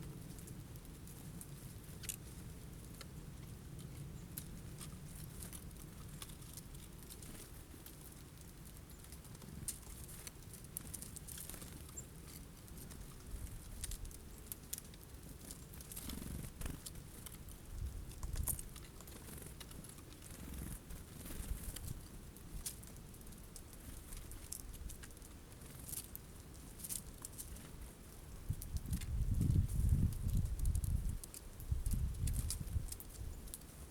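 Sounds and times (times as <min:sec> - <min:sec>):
birds pecking at seeds: 0:00.0 - 0:33.9
low wind rumble: 0:28.3 - 0:33.9.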